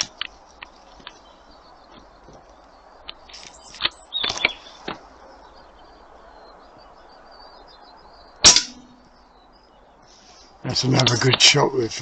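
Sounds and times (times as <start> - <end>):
birds chirping faintly: 0.0 - 12.0
air gun shot: 8.4 - 8.8.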